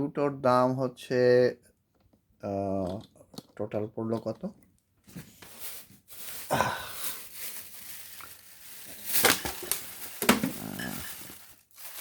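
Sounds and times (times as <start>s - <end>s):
paper and packaging rustling: 4.1s - 12.0s.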